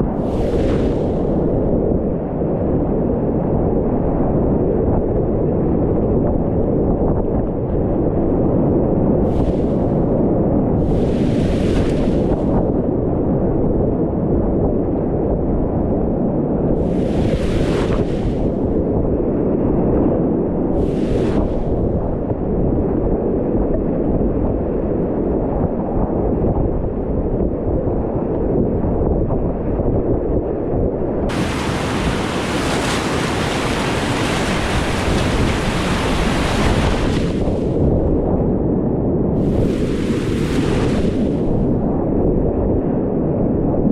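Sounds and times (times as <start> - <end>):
wind buffeting: 0.0 - 5.8, 7.0 - 14.4, 16.6 - 23.3, 30.4 - 43.9
splashing water hiss: 16.8 - 18.4, 31.3 - 37.7, 39.4 - 41.5
whitewater rapids rushing: 31.3 - 37.5.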